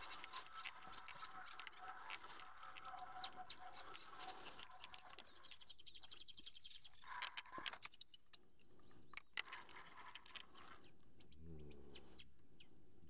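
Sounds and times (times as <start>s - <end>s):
high bird trill: 0.0s - 9.1s
birds chirping: 0.0s - 13.0s.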